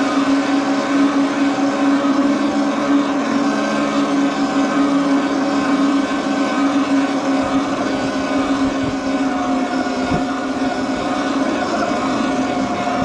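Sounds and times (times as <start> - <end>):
electric motor hum: 0.0 - 13.0.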